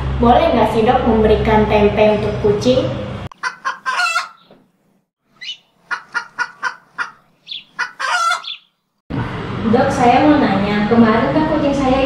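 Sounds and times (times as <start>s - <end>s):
high-pitched bird-like calls: 3.4s - 4.5s, 5.3s - 8.7s.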